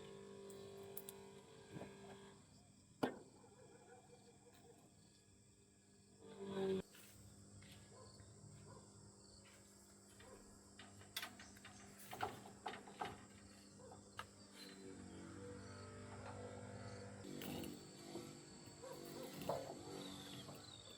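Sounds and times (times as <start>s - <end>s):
faint insect chirring: 7.3s - 20.9s.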